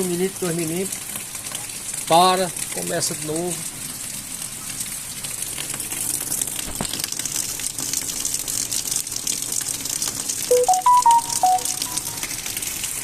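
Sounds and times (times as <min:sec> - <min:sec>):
light rain falling: 0:00.0 - 0:13.0
short whistled notes: 0:10.5 - 0:12.3.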